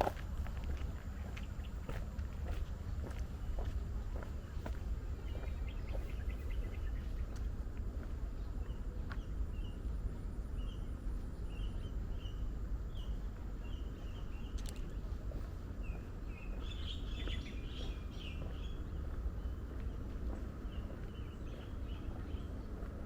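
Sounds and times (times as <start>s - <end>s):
low outdoor rumble: 0.0s - 23.0s
bird chirping: 4.3s - 7.5s, 8.4s - 15.2s, 15.8s - 23.0s.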